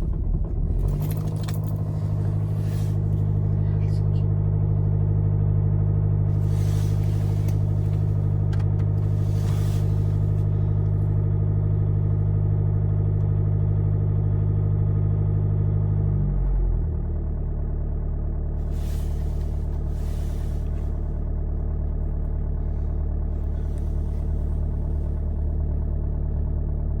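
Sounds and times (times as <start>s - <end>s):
diesel engine idling: 0.0s - 27.0s
brief hissing: 2.5s - 3.2s, 6.4s - 8.4s, 9.0s - 10.5s, 18.7s - 21.0s.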